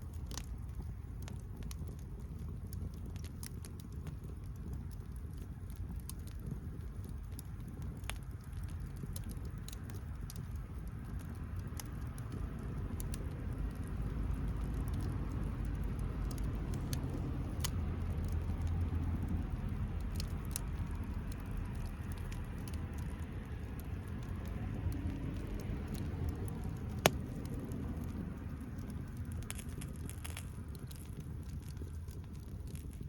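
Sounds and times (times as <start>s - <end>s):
bonfire crackling: 0.0s - 33.0s
fire pops and snaps: 0.0s - 33.0s
steady low rumble: 0.0s - 33.0s.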